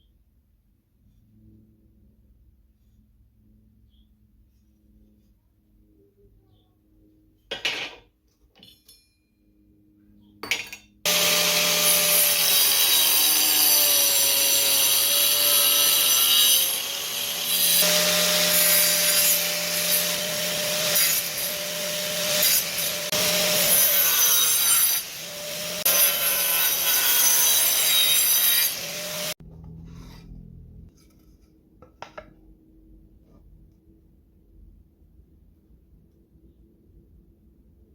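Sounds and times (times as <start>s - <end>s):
angle grinder cutting wood: 11.1s - 29.4s.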